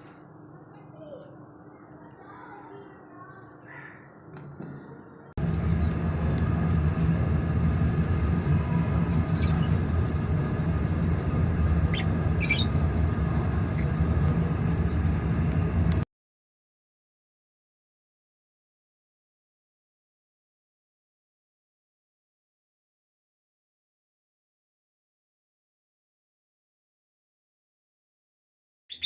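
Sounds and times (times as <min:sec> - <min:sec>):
low mechanical hum: 0:00.0 - 0:16.1
lovebirds chirping: 0:08.0 - 0:15.7.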